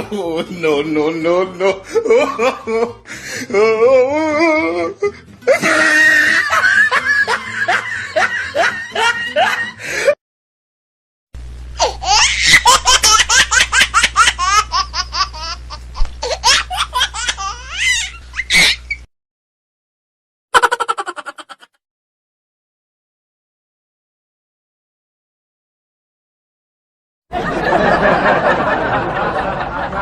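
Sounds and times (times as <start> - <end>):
hearty laughing: 1.5 - 3.1, 5.4 - 10.2, 27.4 - 30.0
low hum: 11.4 - 12.0
rapid high-pitched laughing: 11.8 - 19.0, 20.6 - 21.8.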